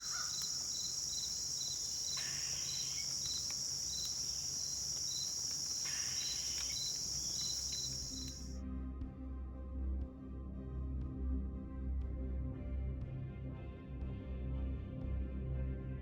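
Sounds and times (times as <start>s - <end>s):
insect high trill: 0.0s - 8.5s
insect chirping: 0.0s - 8.6s.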